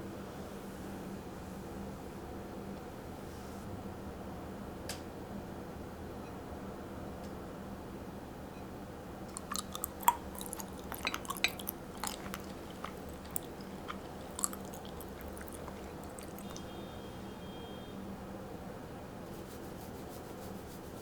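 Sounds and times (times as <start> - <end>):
crunchy food chewing: 9.3 - 16.8.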